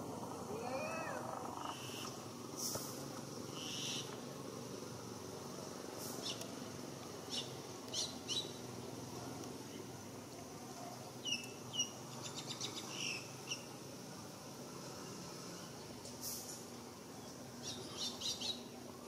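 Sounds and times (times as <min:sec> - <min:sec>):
low background hum: 0:00.0 - 0:19.0
small birds chirping: 0:00.6 - 0:02.3, 0:03.2 - 0:04.2, 0:06.1 - 0:06.6, 0:07.2 - 0:09.0, 0:11.0 - 0:13.8, 0:14.9 - 0:18.8.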